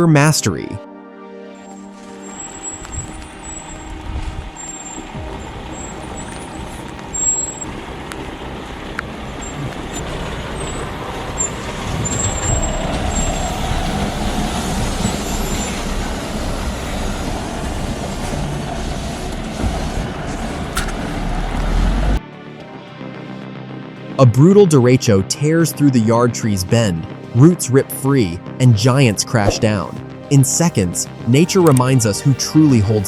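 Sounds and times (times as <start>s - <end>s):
diesel truck engine under load: 1.9s - 22.2s.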